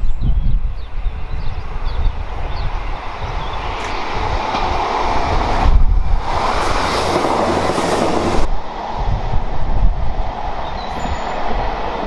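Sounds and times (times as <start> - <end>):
train wheels clattering on track: 3.7 - 8.5.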